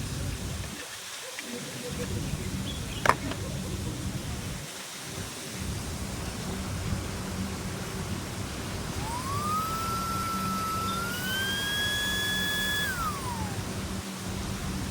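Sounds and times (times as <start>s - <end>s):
car vacuum running: 8.4s - 14.9s
whistling tone: 9.0s - 13.7s.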